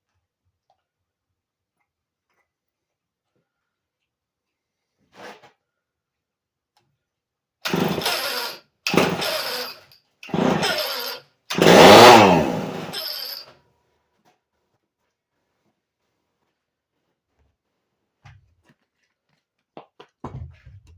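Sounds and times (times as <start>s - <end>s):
chainsaw engine firing briefly: 10.3s - 10.9s, 11.5s - 13.0s.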